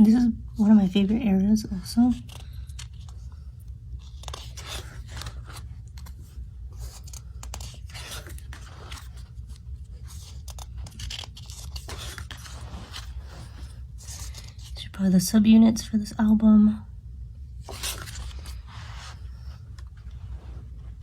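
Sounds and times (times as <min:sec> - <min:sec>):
book pages rustling: 0:01.8 - 0:14.8, 0:17.6 - 0:21.0.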